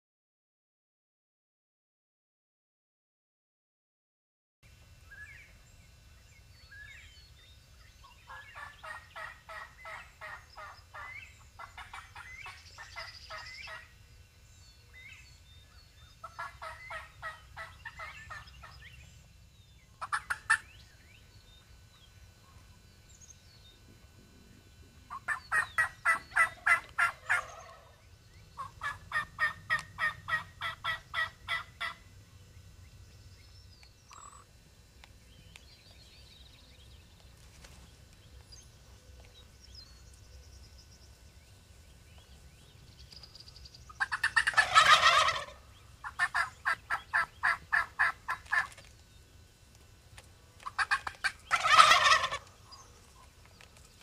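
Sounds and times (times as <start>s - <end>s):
wild turkey calling: 7.8s - 13.9s, 15.9s - 18.9s, 19.9s - 21.6s, 25.1s - 32.0s, 34.1s - 34.5s, 43.9s - 48.8s, 50.6s - 53.3s.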